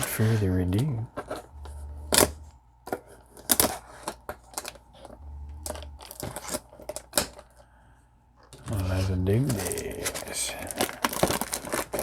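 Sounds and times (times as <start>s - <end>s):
card box packaging clicking and crinkling: 8.6s - 12.0s.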